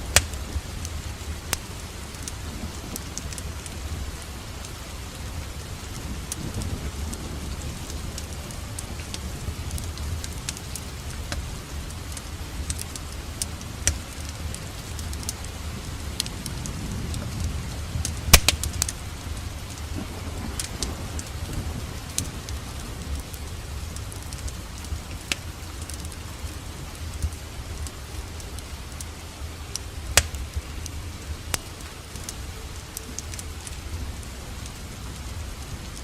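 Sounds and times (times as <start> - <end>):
rain rushing: 0.0 - 36.0
wood fire crackling and popping: 0.0 - 36.0.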